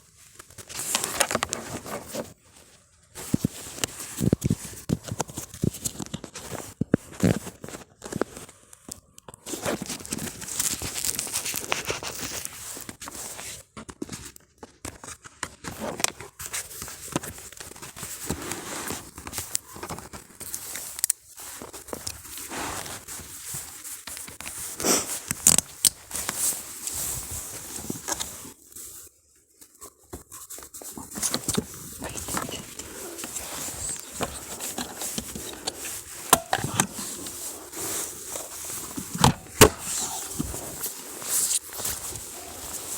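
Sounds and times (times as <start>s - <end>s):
footsteps on dry leaves and twigs: 30.8s - 42.9s.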